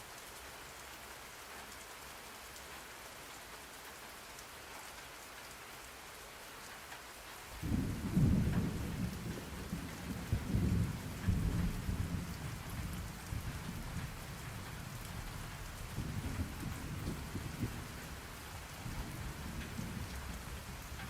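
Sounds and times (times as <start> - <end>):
steady rain: 0.0 - 21.0
low rolling thunder rumble: 7.6 - 21.0.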